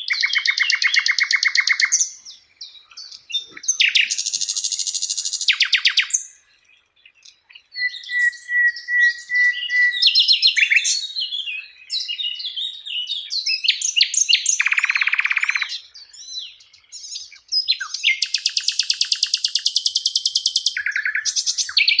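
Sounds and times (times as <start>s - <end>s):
flycatcher singing: 0.0s - 22.0s.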